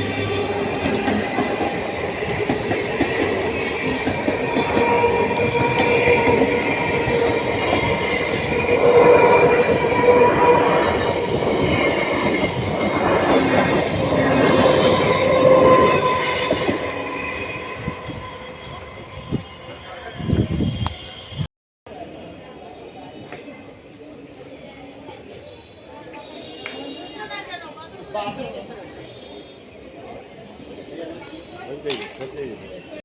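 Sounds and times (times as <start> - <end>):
train wheels rumbling on rails: 0.0 - 21.4.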